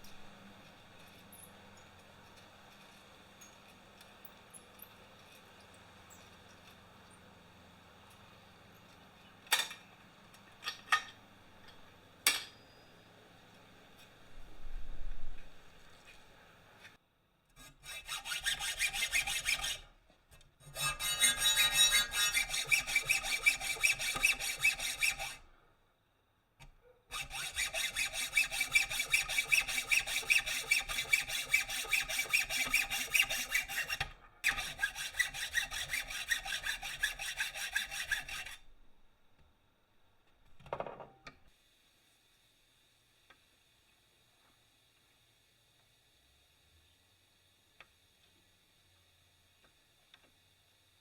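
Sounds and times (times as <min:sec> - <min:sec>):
rasping strokes on steel: 0:17.6 - 0:19.9, 0:20.6 - 0:25.5, 0:27.1 - 0:38.8.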